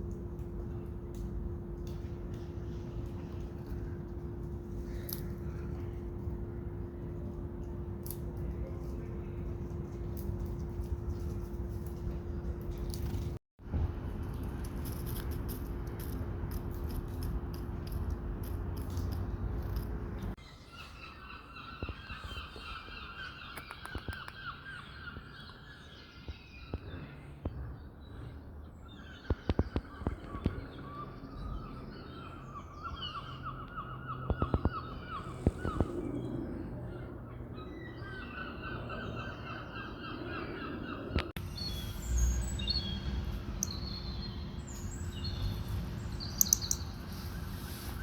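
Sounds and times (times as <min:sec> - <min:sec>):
low rumble with hum: 0:00.0 - 0:20.4, 0:26.5 - 0:48.0
birds calling: 0:19.6 - 0:48.0.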